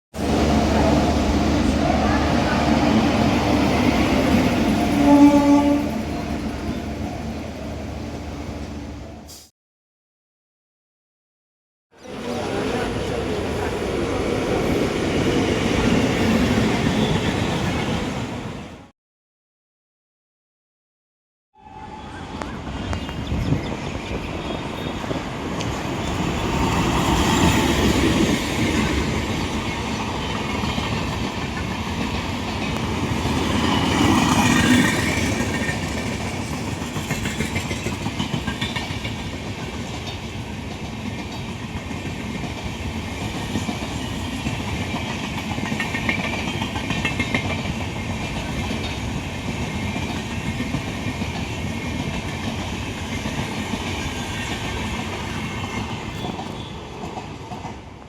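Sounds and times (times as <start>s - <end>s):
train wheels clattering over rails: 26.5s - 58.0s.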